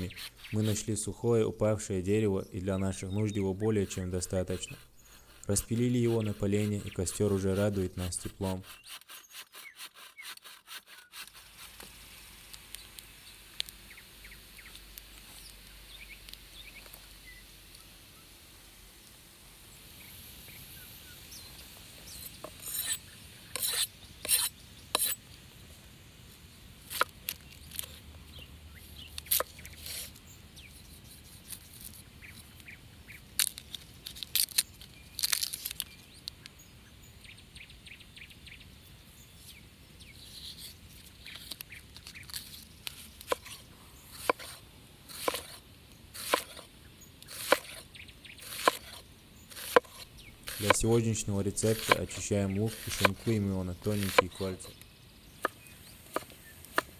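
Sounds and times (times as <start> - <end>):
knife peeling onion: 0.0 - 1.0, 3.3 - 11.8, 22.1 - 23.0, 23.6 - 25.2, 40.4 - 47.8, 48.4 - 54.8
knife slicing on wooden board: 23.6 - 25.2, 44.2 - 45.6, 46.2 - 47.8, 48.4 - 50.9, 51.5 - 54.4.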